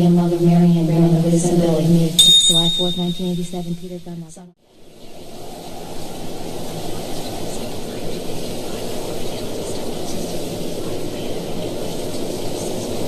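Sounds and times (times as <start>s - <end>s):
faint hum: 0.0s - 13.0s
low rumbling noise: 0.0s - 13.0s
hiss: 4.7s - 13.0s.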